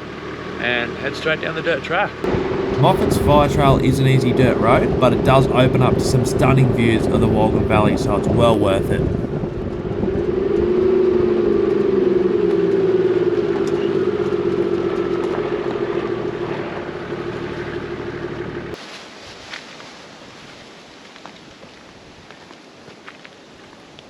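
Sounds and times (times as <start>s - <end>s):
vehicle engine droning: 0.0s - 18.8s.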